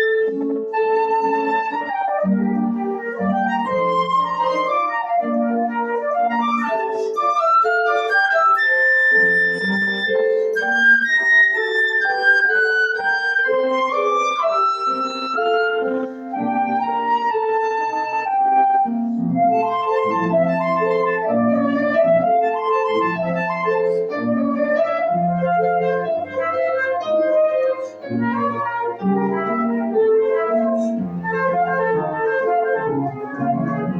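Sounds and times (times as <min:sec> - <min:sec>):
flute melody: 0:00.0 - 0:33.9
piano accompaniment: 0:00.0 - 0:33.9.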